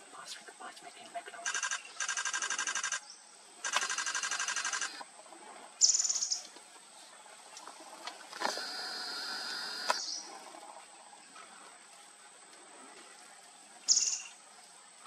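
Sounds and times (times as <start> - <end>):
birds calling with rattling trill: 5.8 - 6.5, 7.8 - 10.6, 13.8 - 14.4.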